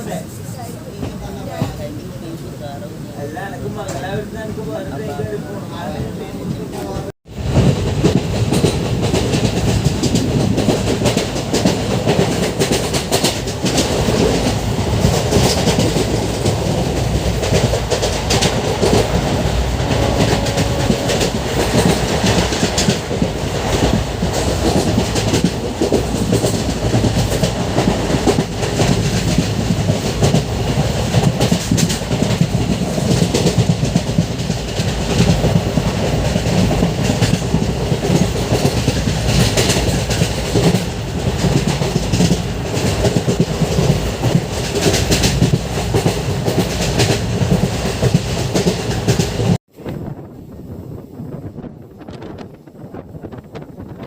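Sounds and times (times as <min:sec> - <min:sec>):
train rumble: 0:00.0 - 0:54.0
wheels clattering over rails: 0:06.5 - 0:49.6.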